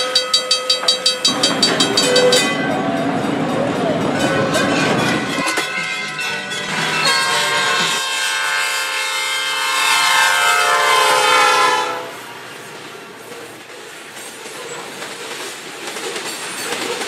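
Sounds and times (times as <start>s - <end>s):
high ringing tone: 0.0s - 3.9s
trolley car running on rail: 0.0s - 17.0s.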